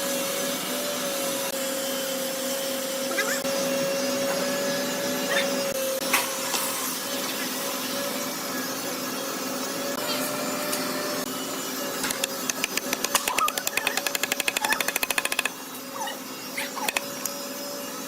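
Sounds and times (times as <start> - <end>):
woodworking machine humming: 11.0 - 15.7
fast clatter of sharp clicks: 12.0 - 15.5, 16.8 - 17.1.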